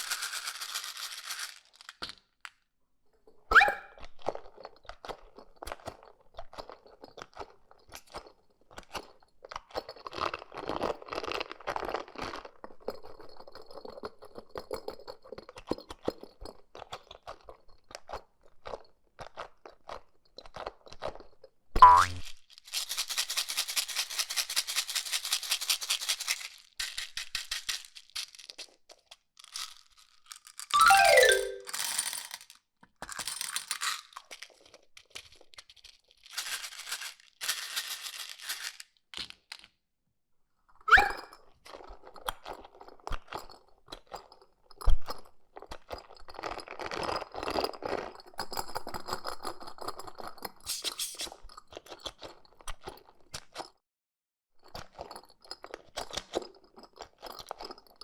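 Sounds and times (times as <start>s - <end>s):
cartoon falling glide: 3.5s - 3.9s, 21.8s - 22.2s, 30.8s - 31.6s.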